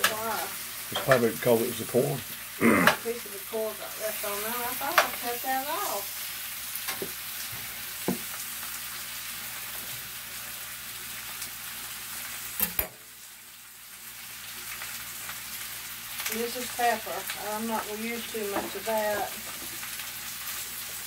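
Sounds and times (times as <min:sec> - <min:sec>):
food sizzling in a skillet: 0:00.0 - 0:21.0.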